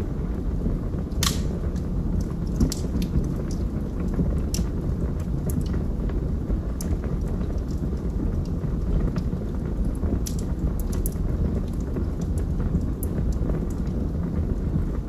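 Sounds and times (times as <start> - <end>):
fire flames rumbling: 0.0 - 15.0
logs crackling and popping: 0.0 - 15.0.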